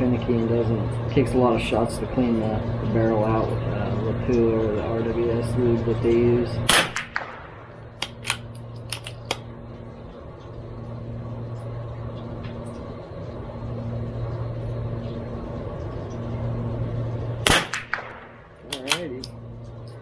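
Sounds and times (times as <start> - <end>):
low mechanical hum: 0.0 - 20.0
rifle bolt clicks: 8.0 - 9.4, 18.7 - 19.3.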